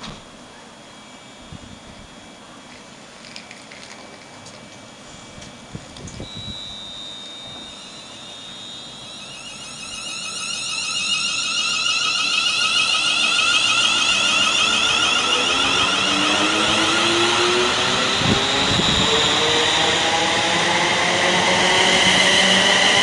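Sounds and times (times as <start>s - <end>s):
train running noise: 2.0s - 23.0s
high-pitched whining tones: 4.6s - 23.0s
steady high tone: 4.8s - 23.0s.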